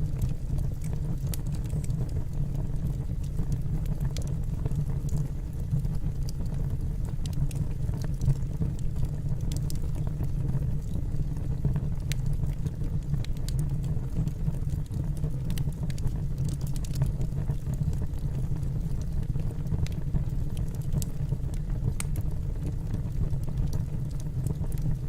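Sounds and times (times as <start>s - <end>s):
logs crackling and popping: 0.0s - 25.0s
low rumble of flames: 0.0s - 25.0s.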